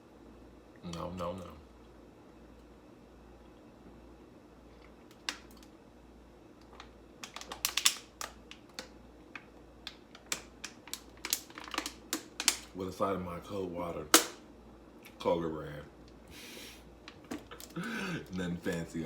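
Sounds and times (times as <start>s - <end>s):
small objects clicking and tapping: 6.6s - 12.7s.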